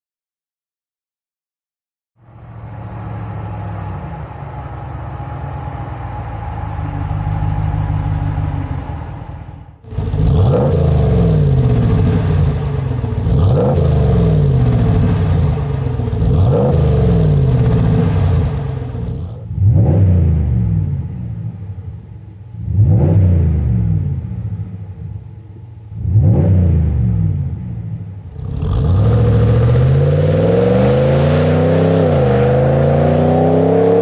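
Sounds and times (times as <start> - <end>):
car engine idling: 2.2 - 19.7, 20.4 - 22.8, 23.5 - 26.2, 26.8 - 30.0
engine revving: 2.2 - 21.6, 22.6 - 24.5, 25.9 - 34.0.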